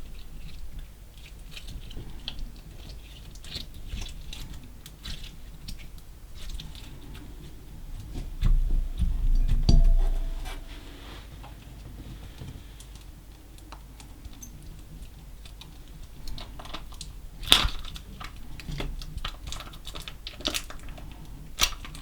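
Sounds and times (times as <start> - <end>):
low handling rumble: 7.9 - 11.1.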